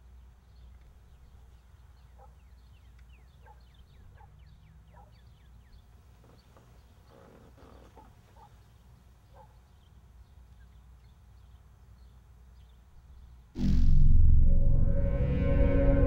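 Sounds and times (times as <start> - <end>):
faint birds chirping: 0.0 - 14.6
low steady hum: 13.6 - 16.0.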